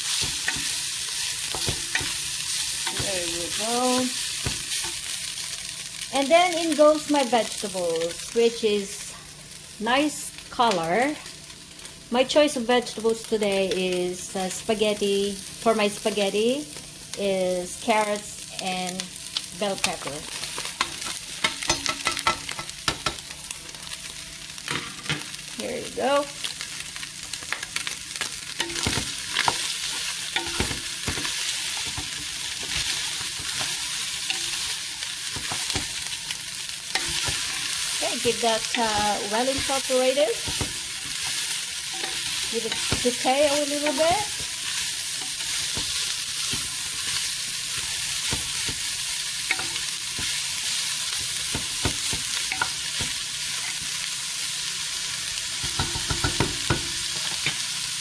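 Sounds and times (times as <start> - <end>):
vegetables and meat sizzling in pan: 0.0 - 58.0
utensil knocking against pan: 55.6 - 57.0.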